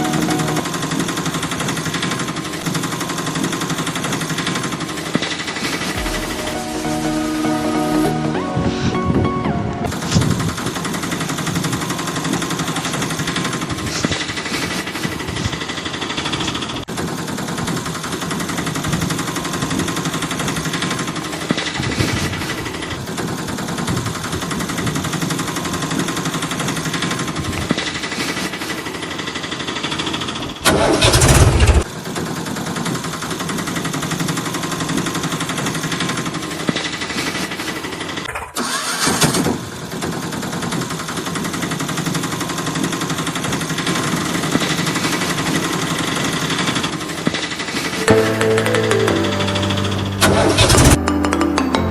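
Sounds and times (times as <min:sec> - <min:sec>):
loud engine burst: 0:05.9 - 0:09.0, 0:30.6 - 0:31.9, 0:50.2 - 0:51.0.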